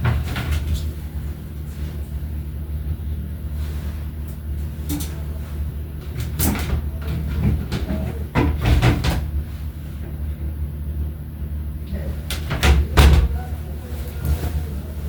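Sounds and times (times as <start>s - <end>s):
knocks and clatters: 0.0s - 1.0s, 6.0s - 9.4s
steady low hum: 0.0s - 15.0s.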